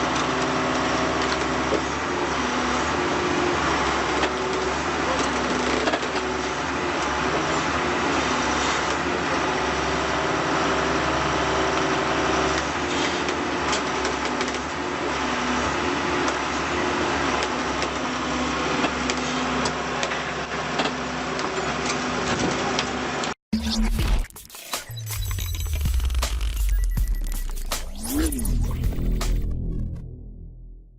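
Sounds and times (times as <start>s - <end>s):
engine running steadily: 0.0s - 23.4s.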